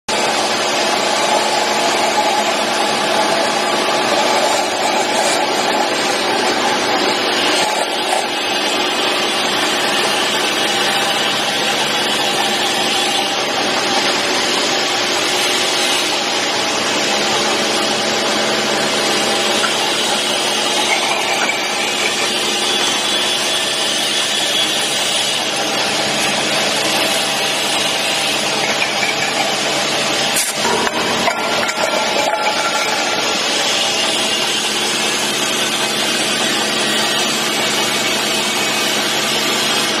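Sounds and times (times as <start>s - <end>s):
industrial machine running: 0.1s - 40.0s.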